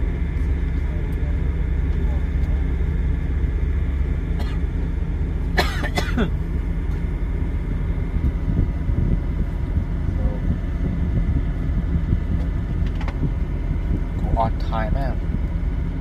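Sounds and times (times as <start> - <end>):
truck engine rumble from cab: 0.0 - 16.0
short cough: 4.4 - 4.6, 5.6 - 6.4.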